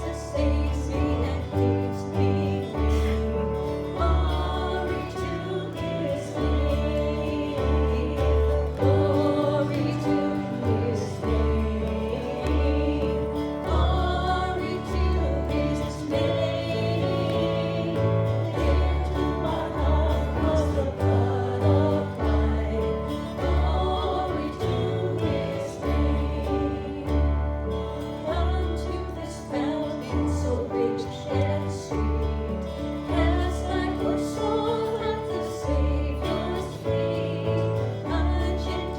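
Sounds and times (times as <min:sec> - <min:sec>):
steady bass line: 0:00.0 - 0:29.0
people singing worship song: 0:00.0 - 0:38.9.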